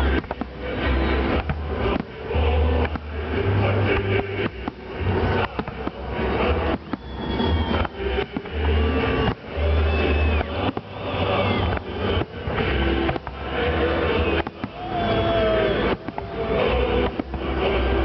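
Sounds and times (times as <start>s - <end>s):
fireworks whistling: 0.0s - 17.9s
fireworks booms and cracks: 0.0s - 18.0s.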